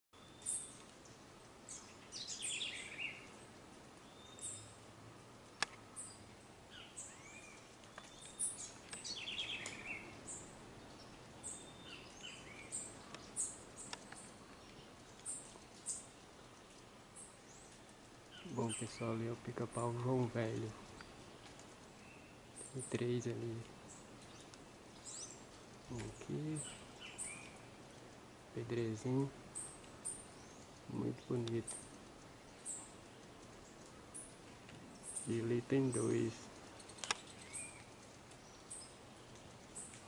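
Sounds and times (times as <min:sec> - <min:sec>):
faint steady hiss: 0:00.2 - 0:40.0
wild birds calling: 0:00.2 - 0:40.0
sharp click: 0:37.0 - 0:37.2.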